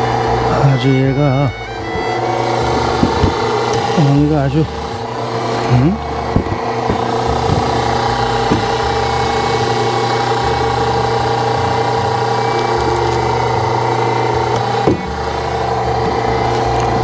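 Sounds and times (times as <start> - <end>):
hydraulic log splitter running: 0.0 - 17.0.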